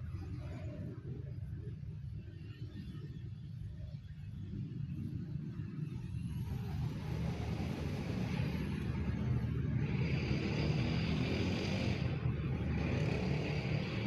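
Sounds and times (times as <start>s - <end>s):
bus engine rumble: 4.2s - 14.0s.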